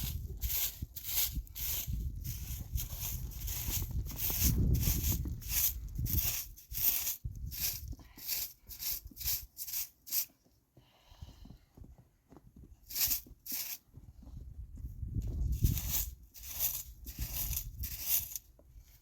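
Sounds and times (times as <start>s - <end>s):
footsteps in snow: 0.0s - 10.3s, 12.8s - 13.8s, 15.4s - 18.4s.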